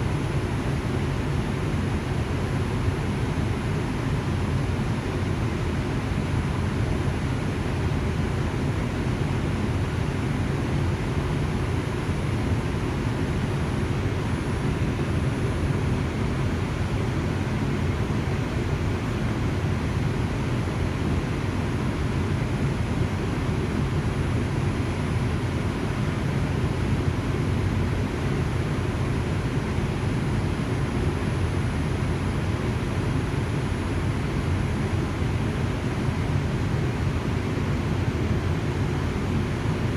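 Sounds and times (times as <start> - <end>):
faint steady whine: 0.0 - 39.9.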